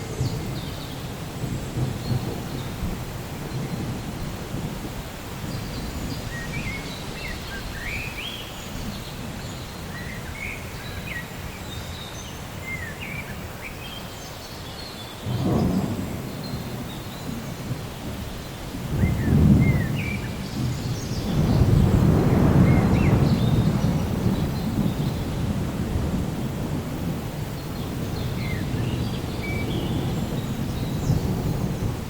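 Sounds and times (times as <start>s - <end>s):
rolling thunder: 0.0s - 8.0s, 15.3s - 32.0s
rain hiss: 0.0s - 32.0s.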